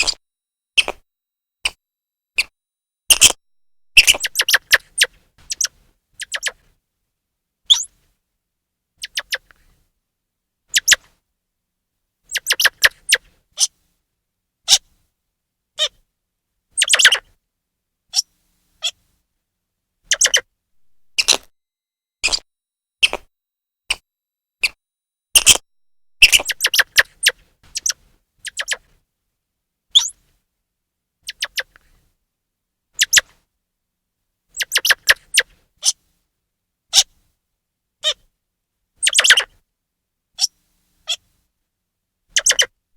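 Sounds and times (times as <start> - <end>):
squirrel chirping: 3.1 - 6.5, 12.3 - 13.2, 20.1 - 21.4, 25.4 - 25.6, 26.2 - 28.8, 34.6 - 35.4, 39.0 - 39.4, 42.4 - 42.7.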